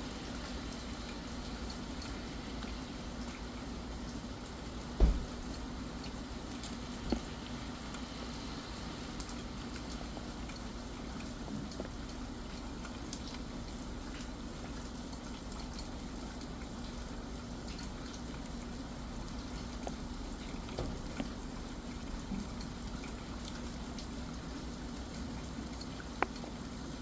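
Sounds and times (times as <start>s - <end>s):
steady rain: 0.0s - 27.0s.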